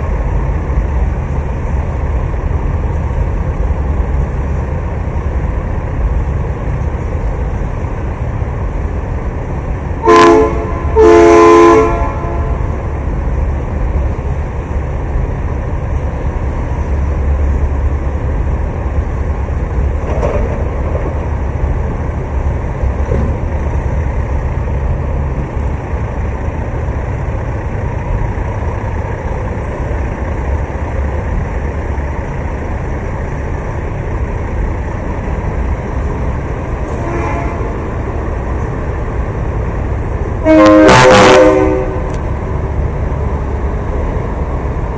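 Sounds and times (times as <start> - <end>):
steady low rumble: 0.0 - 44.9
truck air horn blasts: 10.0 - 12.7, 36.9 - 37.8, 40.4 - 42.2.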